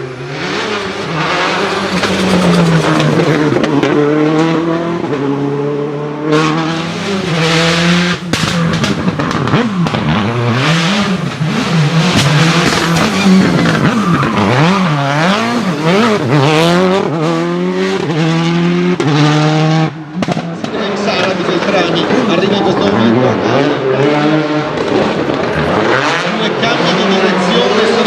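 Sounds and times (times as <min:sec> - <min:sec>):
rally car engine revving: 0:00.0 - 0:28.0
exhaust pops and cracks: 0:08.2 - 0:10.2, 0:12.1 - 0:16.6, 0:20.2 - 0:21.7.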